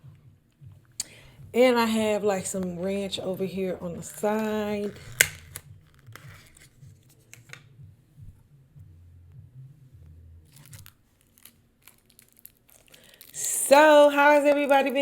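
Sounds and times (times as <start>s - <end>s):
low steady hum: 0.0s - 15.0s
food packaging crackling: 3.9s - 7.6s, 10.5s - 15.0s.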